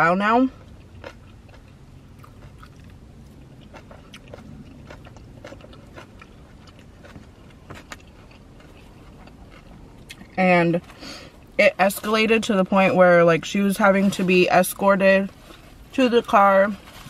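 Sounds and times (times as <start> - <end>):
low steady hum: 0.0 - 17.0
person chewing fried food: 0.5 - 11.6.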